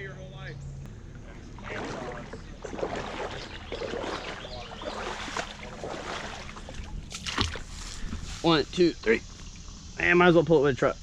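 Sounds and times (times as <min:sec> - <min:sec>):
water sloshing and splashing: 0:01.1 - 0:08.6.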